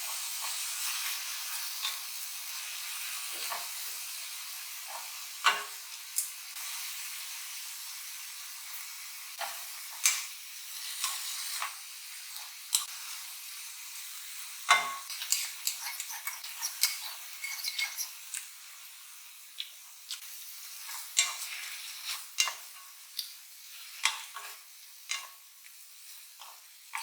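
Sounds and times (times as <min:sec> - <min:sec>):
food sizzling in a pan: 0:00.0 - 0:27.0
spatula scraping a pan: 0:14.8 - 0:18.2.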